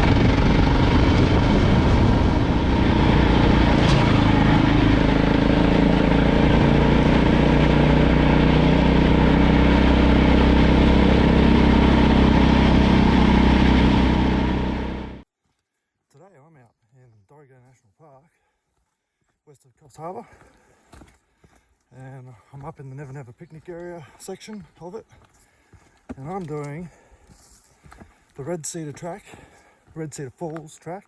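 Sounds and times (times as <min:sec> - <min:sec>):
motorcycle engine running: 0:00.0 - 0:15.2.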